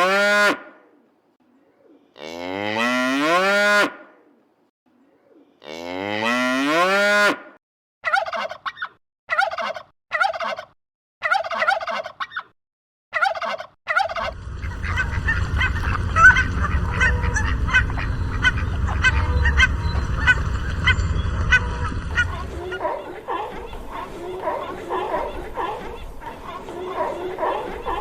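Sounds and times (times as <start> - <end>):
turkey gobbling: 8.1 - 12.5, 13.2 - 28.0
noisy background: 14.3 - 26.5.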